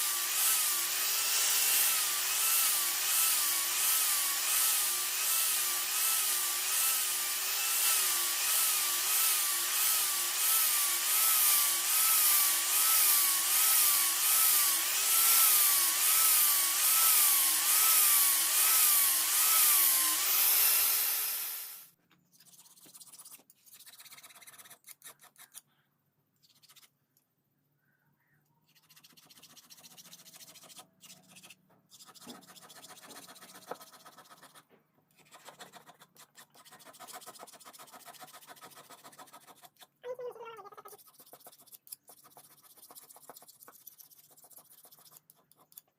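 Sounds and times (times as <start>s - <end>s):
electric grinder on metal: 0.0s - 21.9s.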